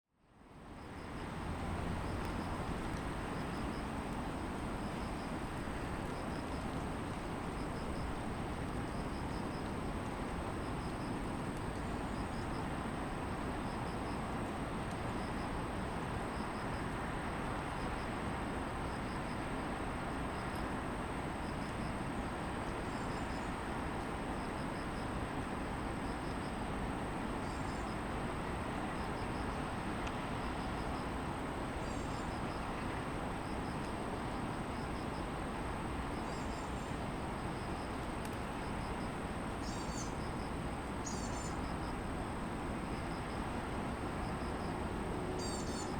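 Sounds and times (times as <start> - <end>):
distant city traffic hum: 0.5 - 45.9
insect chirping: 2.0 - 9.9, 10.5 - 12.7, 21.4 - 23.6, 24.3 - 25.1, 27.4 - 28.0, 29.0 - 29.7, 30.4 - 32.8, 33.4 - 35.3, 36.0 - 44.8, 45.4 - 45.9
high insect trill: 36.1 - 42.0, 45.4 - 45.9.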